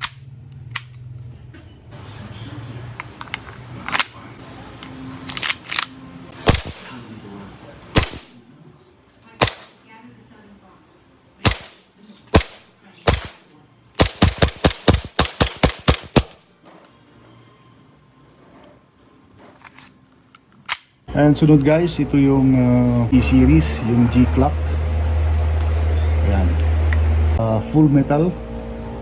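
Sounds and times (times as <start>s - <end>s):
airsoft pistol firing: 6.4s - 7.0s, 8.0s - 8.3s, 9.4s - 9.8s, 11.4s - 13.4s, 14.0s - 16.4s.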